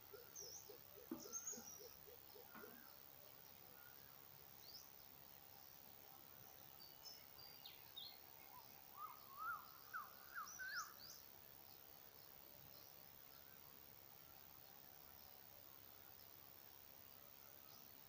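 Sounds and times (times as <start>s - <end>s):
rural background hiss: 0.0s - 18.0s.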